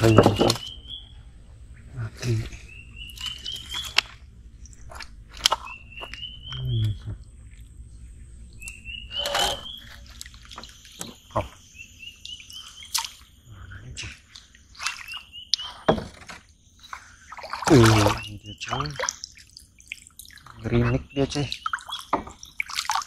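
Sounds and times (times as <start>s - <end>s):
bird singing rising notes: 0.0s - 13.9s
water splashing from paddling: 16.9s - 23.0s.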